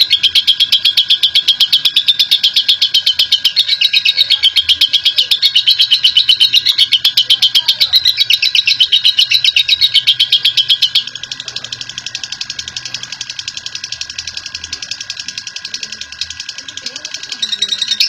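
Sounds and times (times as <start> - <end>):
lovebird chattering call: 0.0 - 18.0.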